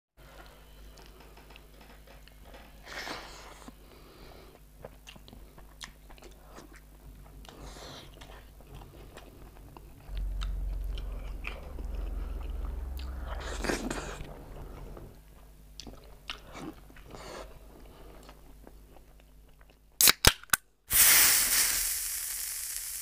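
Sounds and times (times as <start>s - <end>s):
low hum: 8.6s - 16.2s.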